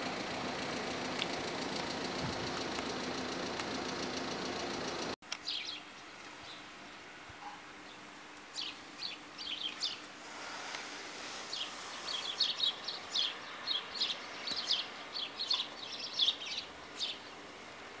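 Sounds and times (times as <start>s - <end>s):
small birds chirping: 1.0s - 6.7s, 7.4s - 17.9s.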